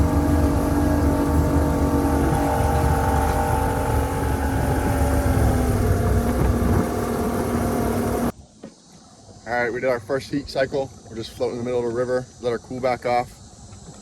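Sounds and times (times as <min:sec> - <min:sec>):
two-stroke boat engine running: 0:00.0 - 0:08.3.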